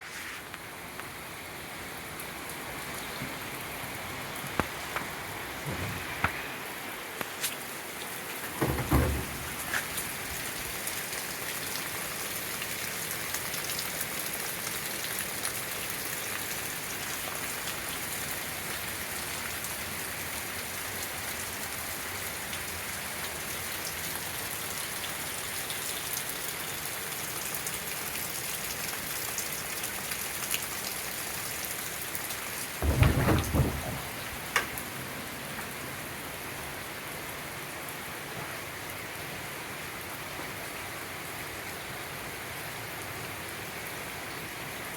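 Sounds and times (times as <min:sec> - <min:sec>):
hard rain falling: 0:00.0 - 0:44.9.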